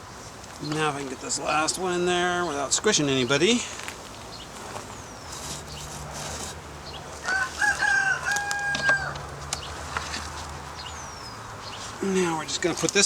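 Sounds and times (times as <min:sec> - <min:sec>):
rooster crowing: 0:07.2 - 0:09.4.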